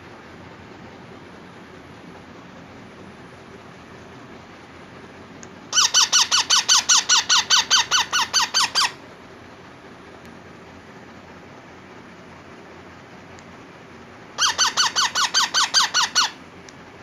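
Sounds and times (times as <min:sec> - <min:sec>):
parakeet chick calling: 0:05.7 - 0:09.0, 0:14.4 - 0:16.4.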